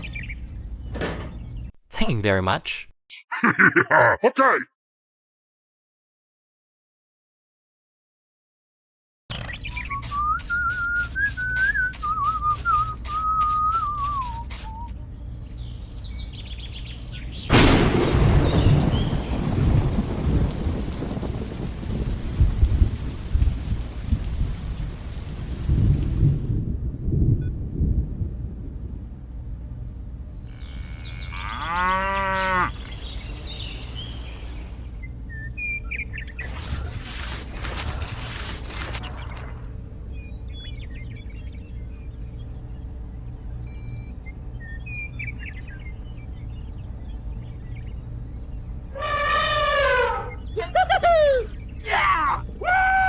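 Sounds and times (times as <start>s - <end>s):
short bird chirps: 9.3s - 15.0s, 32.7s - 34.8s
hissing noise: 9.7s - 14.9s
person whistling a tune: 10.1s - 14.9s
thunder crack: 17.5s - 23.7s
heavy rain: 17.5s - 26.2s
low steady rumble: 25.8s - 51.8s
cow mooing: 30.4s - 32.9s.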